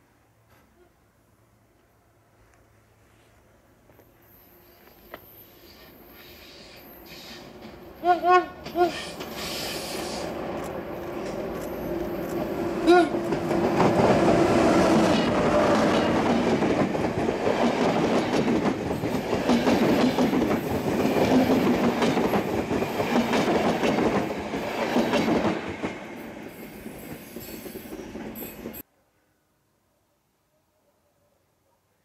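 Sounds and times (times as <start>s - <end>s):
diesel locomotive passing: 4.3s - 28.8s
train wheels clattering over rails: 8.6s - 28.8s.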